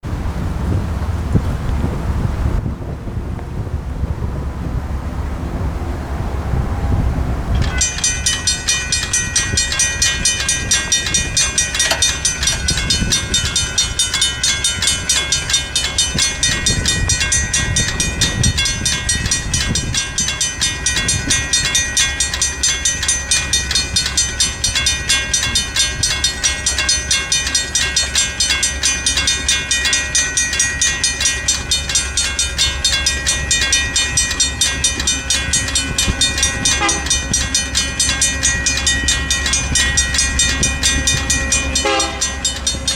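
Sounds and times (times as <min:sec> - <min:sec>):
crossing bells ringing rapidly: 0:07.6 - 0:42.9.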